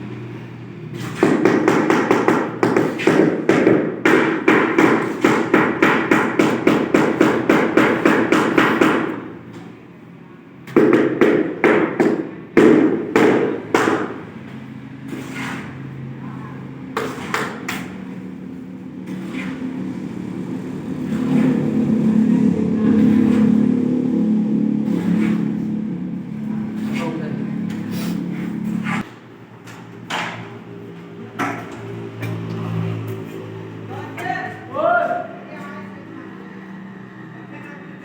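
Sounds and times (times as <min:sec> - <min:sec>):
vehicle engine: 0:12.3 - 0:34.6, 0:35.3 - 0:38.0.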